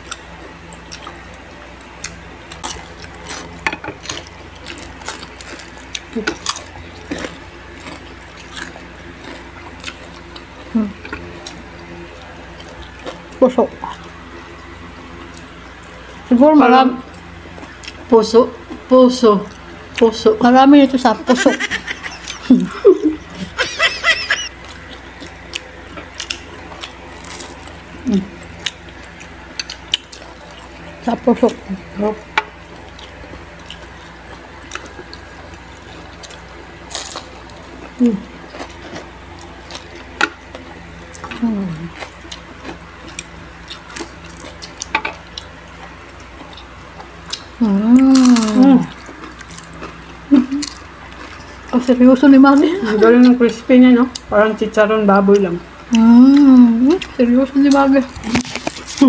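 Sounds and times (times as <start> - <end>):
crunching fried food: 0.0 - 11.7, 21.6 - 30.8, 32.6 - 51.8, 55.9 - 59.0
short high giggle: 21.3 - 24.5.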